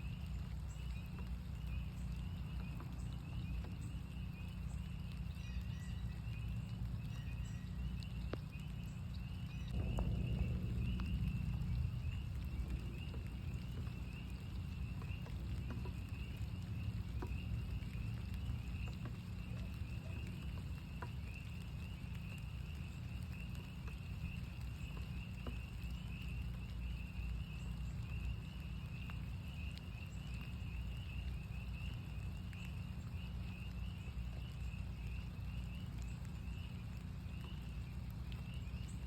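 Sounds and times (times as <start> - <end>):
frogs peeping: 0.0 - 39.0
raindrop taps: 0.0 - 39.0
steady low rumble: 0.0 - 39.0.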